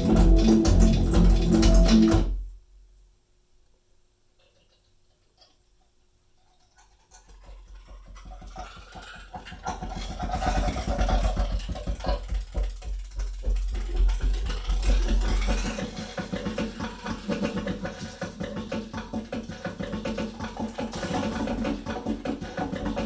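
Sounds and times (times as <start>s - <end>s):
deep bass: 0.0s - 2.3s
mechanical clicking percussion: 0.0s - 2.4s.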